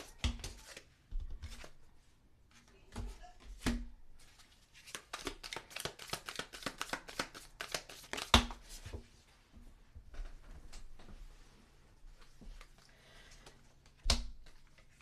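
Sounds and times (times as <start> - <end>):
cards being shuffled: 0.0 - 1.8, 4.4 - 9.0
cards slapping: 4.8 - 8.8.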